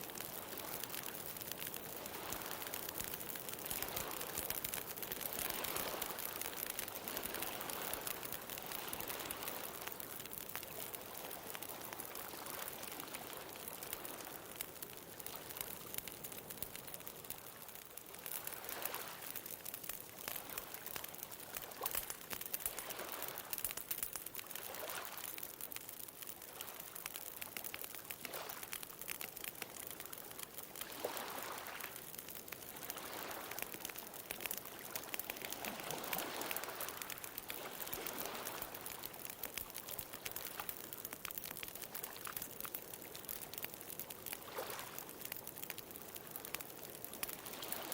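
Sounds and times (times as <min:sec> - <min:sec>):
bonfire crackling and popping: 0:00.0 - 0:47.9.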